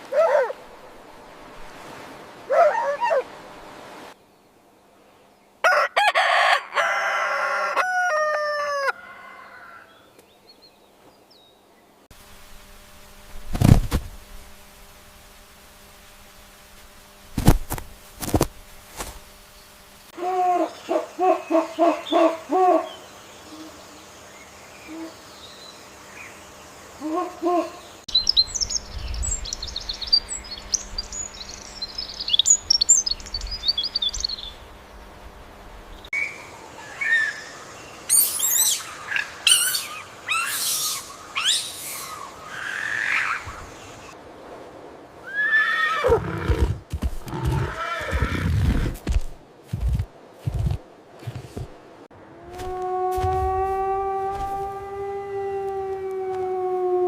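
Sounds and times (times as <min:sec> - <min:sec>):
sweeping high animal calls: 0:36.2 - 0:44.2, 0:45.2 - 0:48.9, 0:52.3 - 0:57.0.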